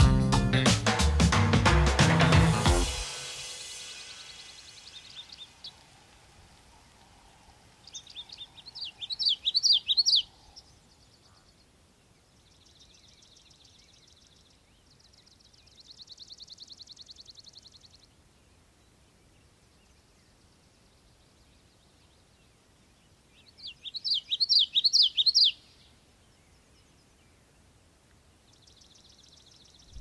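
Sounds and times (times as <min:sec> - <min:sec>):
music: 0:00.0 - 0:04.3
bird song whistled notes: 0:02.8 - 0:06.2, 0:07.8 - 0:11.1, 0:19.2 - 0:27.4, 0:28.5 - 0:30.0
bird trills: 0:03.0 - 0:06.2, 0:07.8 - 0:10.7, 0:23.6 - 0:25.6.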